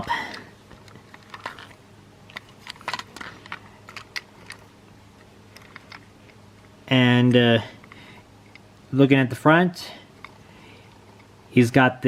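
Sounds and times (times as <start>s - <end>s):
faint clicks and crackles: 0.2s - 6.8s.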